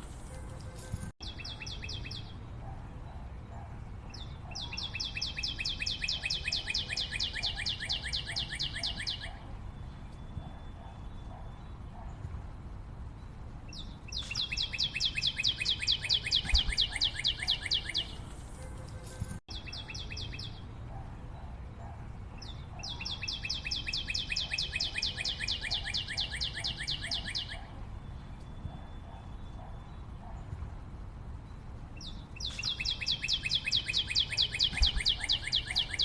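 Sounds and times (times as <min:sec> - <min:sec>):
faint lower bird calls: 0:32.4 - 0:36.0.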